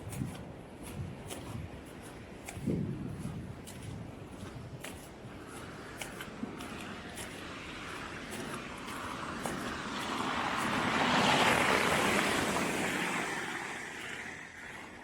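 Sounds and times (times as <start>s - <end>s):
vehicle passing by: 5.6s - 15.0s.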